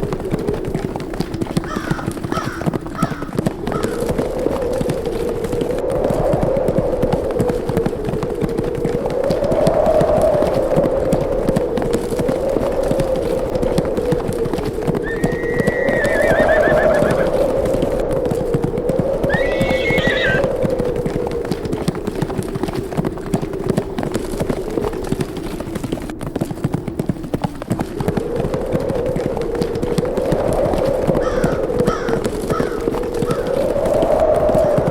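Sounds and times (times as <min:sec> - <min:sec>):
galloping horse hooves: 0:00.0 - 0:34.9
howling wind: 0:00.0 - 0:34.9
horse whinnying: 0:15.0 - 0:17.4, 0:19.2 - 0:20.5.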